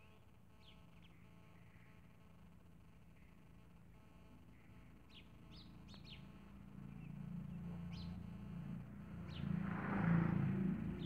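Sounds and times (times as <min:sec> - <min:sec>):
bird chirping: 0:04.5 - 0:08.3.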